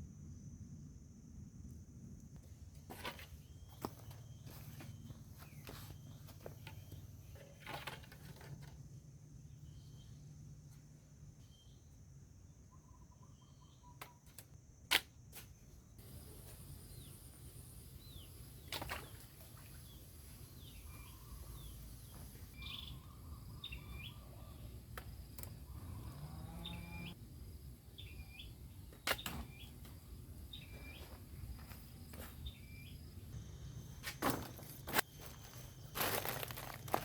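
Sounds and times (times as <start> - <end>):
bird chirping: 12.7 - 14.2, 19.8 - 24.8, 28.0 - 28.6.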